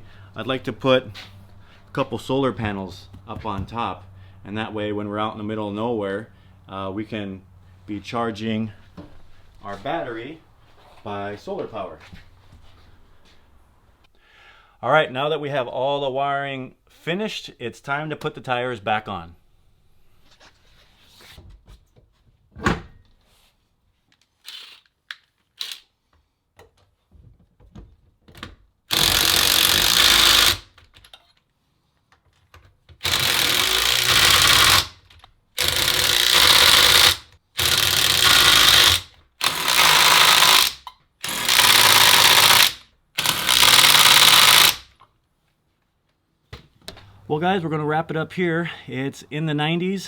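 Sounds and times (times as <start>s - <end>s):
impact wrench bursts: 28.9s - 30.8s, 33.0s - 35.0s, 35.6s - 45.0s.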